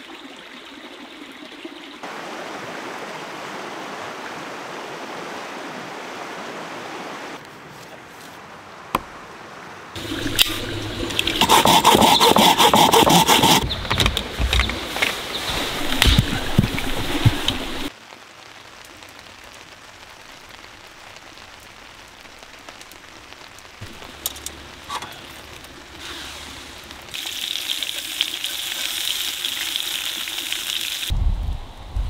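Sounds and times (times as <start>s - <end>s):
rain falling: 8.4s - 31.1s
water drips: 10.0s - 12.5s, 13.4s - 17.9s.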